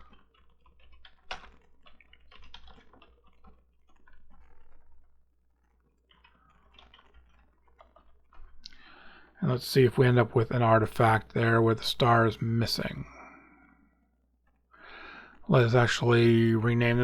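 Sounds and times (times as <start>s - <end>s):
typing on keyboard: 0.0s - 5.0s, 6.0s - 8.8s.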